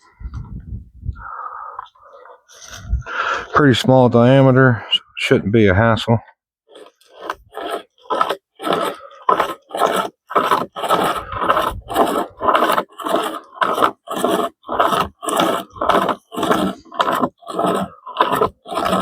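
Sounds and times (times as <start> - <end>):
pocket chainsaw rasping through wood: 1.2 - 3.6, 6.7 - 19.0.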